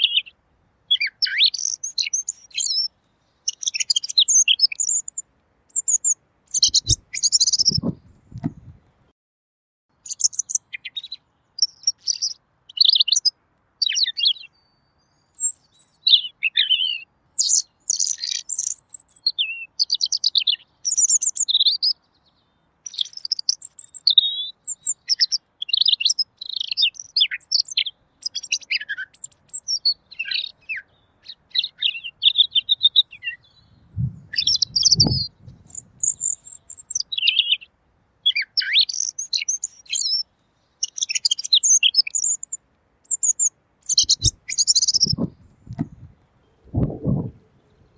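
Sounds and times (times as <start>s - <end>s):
bird warbling song: 0.0s - 0.3s, 0.9s - 8.8s, 9.9s - 47.9s
low thud: 45.1s - 46.1s.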